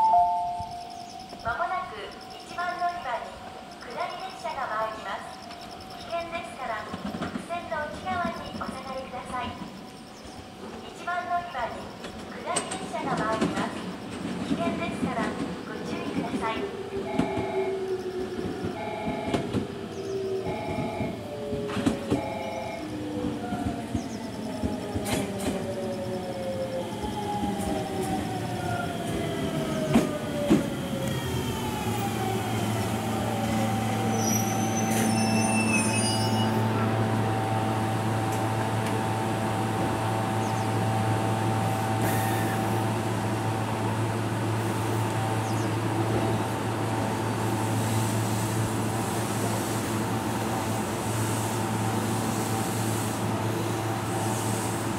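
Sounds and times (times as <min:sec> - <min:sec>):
brake squeal: 0:34.1 - 0:36.7.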